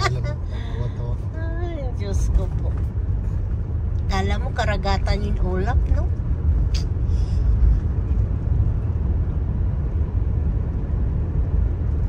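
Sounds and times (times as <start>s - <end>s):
road and engine rumble in car: 0.0s - 12.0s
sharp click: 6.7s - 6.9s.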